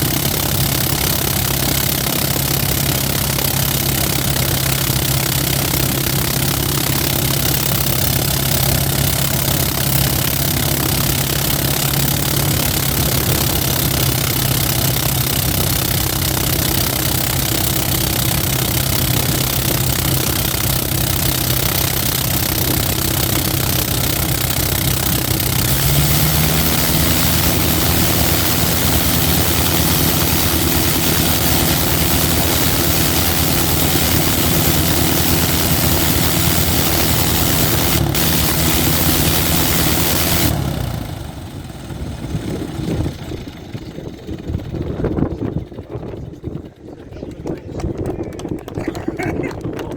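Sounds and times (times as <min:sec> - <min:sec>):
propeller aircraft engine running: 0:00.0 - 0:49.9.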